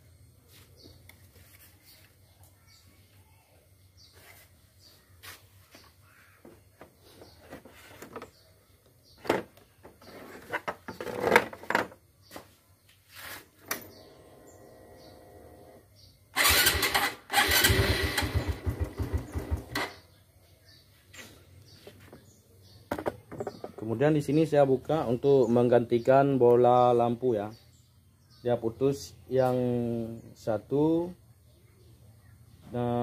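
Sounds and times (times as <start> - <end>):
motorcycle engine running: 16.4 - 20.0
plastic panels clicking and knocking: 22.9 - 23.9.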